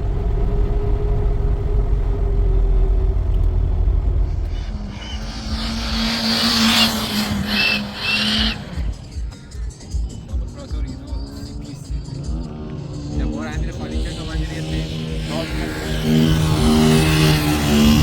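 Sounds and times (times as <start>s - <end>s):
motorcycle engines rumbling: 0.0s - 18.0s
short high squeals: 4.3s - 9.1s.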